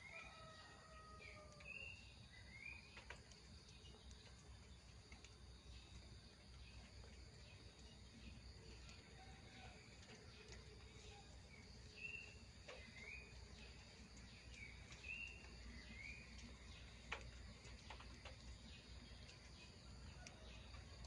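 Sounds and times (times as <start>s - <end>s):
small bird chirping: 10.3s - 21.0s
faint sharp clicks: 14.0s - 21.0s.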